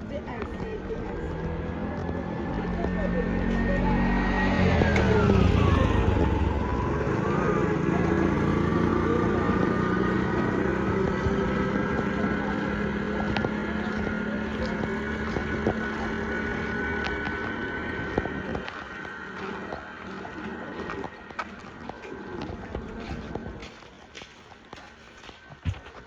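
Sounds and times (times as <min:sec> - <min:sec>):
vehicle passing by: 0:00.0 - 0:23.8
vehicle engine running: 0:00.0 - 0:26.0.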